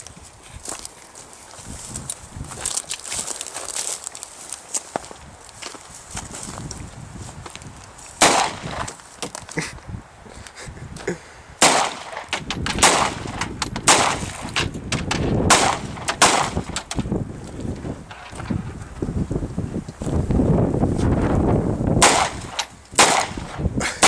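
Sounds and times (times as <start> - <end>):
small knocks and cracks: 2.0 - 5.8, 8.7 - 9.6, 12.2 - 15.4, 16.0 - 18.7
loud gunshots: 8.2 - 8.9, 11.6 - 16.9, 22.0 - 23.6.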